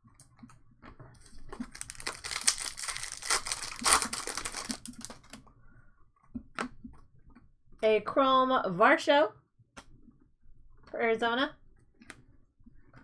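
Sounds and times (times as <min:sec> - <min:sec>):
wrapper tearing and crinkling: 0:01.6 - 0:05.4.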